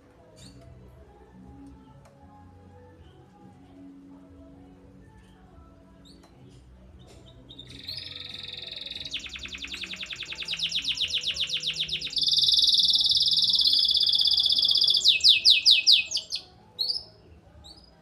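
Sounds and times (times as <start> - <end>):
canary singing trills: 6.0 - 18.0.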